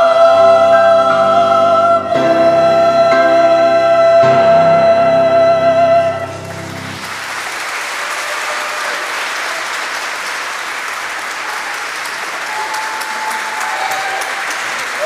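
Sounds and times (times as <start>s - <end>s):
closing music: 0.0s - 7.5s
audience applauding: 6.3s - 15.0s.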